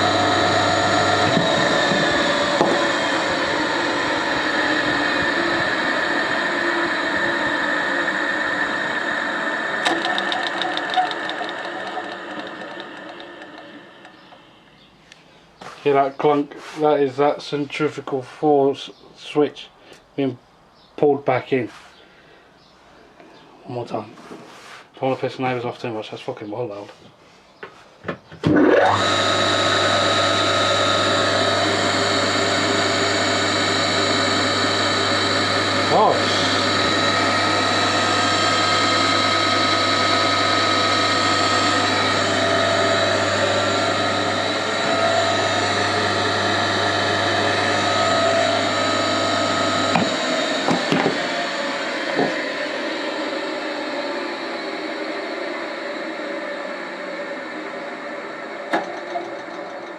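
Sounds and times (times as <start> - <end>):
electric motor running down: 0.0 - 14.9, 28.4 - 59.9.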